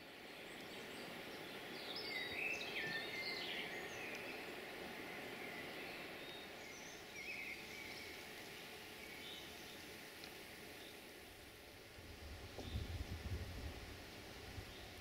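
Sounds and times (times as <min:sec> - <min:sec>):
outdoor background noise: 0:00.0 - 0:15.0
birds singing: 0:00.2 - 0:09.9.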